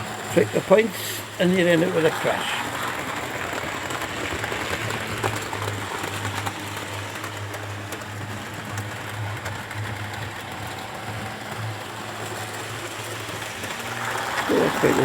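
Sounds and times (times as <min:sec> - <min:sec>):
electric motor hum: 0:00.0 - 0:15.0
wheels clicking over rails: 0:00.0 - 0:15.0.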